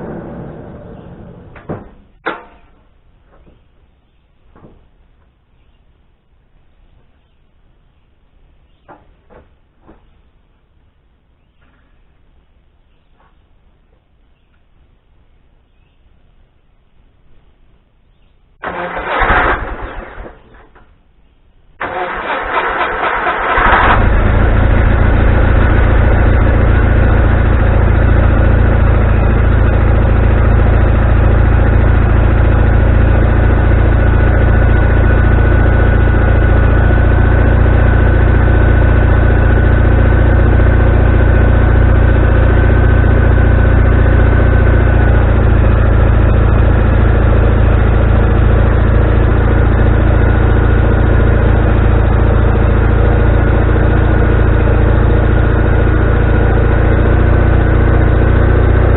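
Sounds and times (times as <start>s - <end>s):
sawmill engine running: 0.0s - 2.4s, 18.6s - 20.8s, 21.8s - 58.9s.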